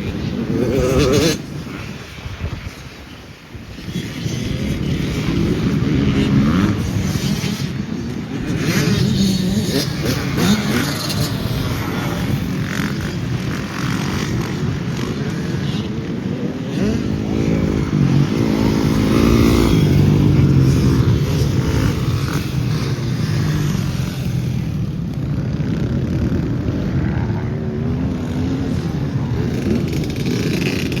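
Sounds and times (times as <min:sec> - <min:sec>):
motocross bike engines revving: 0:00.0 - 0:31.0.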